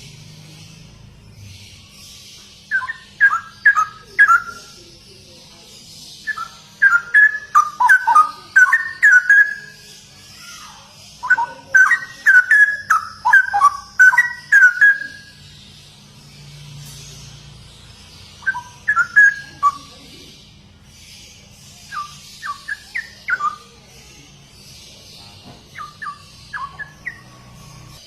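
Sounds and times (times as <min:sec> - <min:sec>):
bird singing liquid whistled notes: 0:01.5 - 0:04.8, 0:06.2 - 0:15.6, 0:18.1 - 0:20.3, 0:21.8 - 0:23.8, 0:25.7 - 0:28.0.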